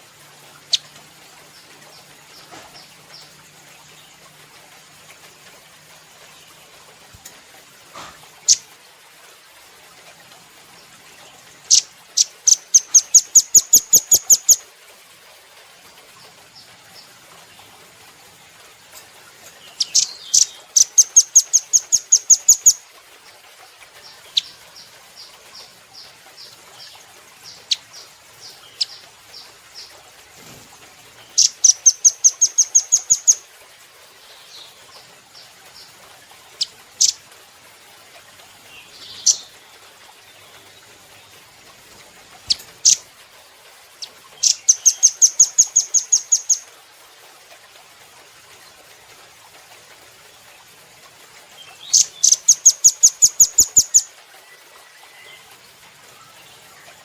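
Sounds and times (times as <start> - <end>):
bird trilling: 11.7 - 14.6, 19.8 - 22.8, 31.4 - 33.4, 44.4 - 46.6, 51.9 - 54.1.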